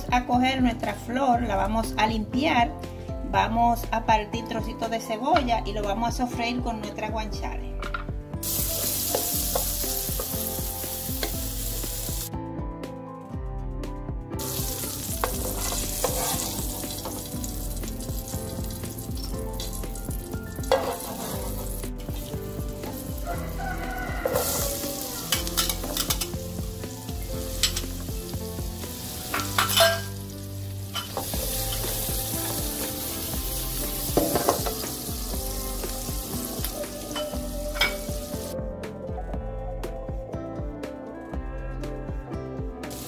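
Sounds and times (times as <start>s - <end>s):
food sizzling in oil: 8.4s - 12.3s, 14.4s - 38.5s
metal spatula scraping pan: 15.2s - 17.2s, 20.6s - 21.8s.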